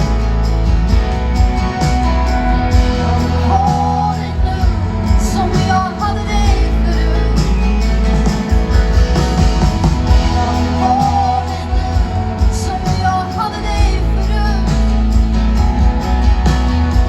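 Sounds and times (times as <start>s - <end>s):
live pop band music: 0.0s - 17.0s
steady bass: 0.0s - 17.0s
woman singing: 2.8s - 8.0s, 10.0s - 15.4s.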